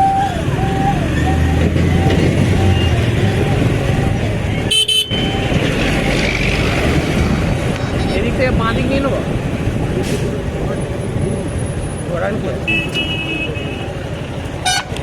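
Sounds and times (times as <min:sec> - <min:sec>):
motorcycle road and wind noise: 0:00.0 - 0:15.0
vehicle horn warbling: 0:04.7 - 0:05.4, 0:12.7 - 0:14.0, 0:14.6 - 0:15.0.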